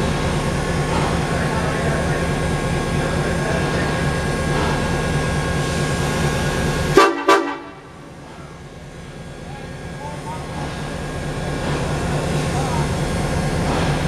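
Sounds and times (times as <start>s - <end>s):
train rumbling: 0.0s - 14.0s
train horn toots: 7.0s - 8.0s.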